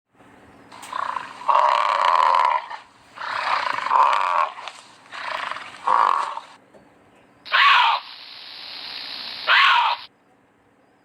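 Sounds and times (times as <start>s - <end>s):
animal calling: 0.7s - 6.6s, 7.5s - 10.1s.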